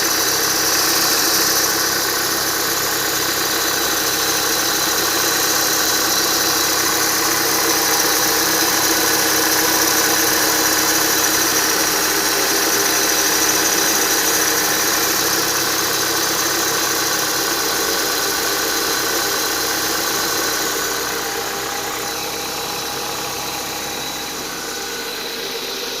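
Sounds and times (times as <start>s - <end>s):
car engine running: 0.0s - 26.0s
high whistle from drive belt: 19.4s - 26.0s.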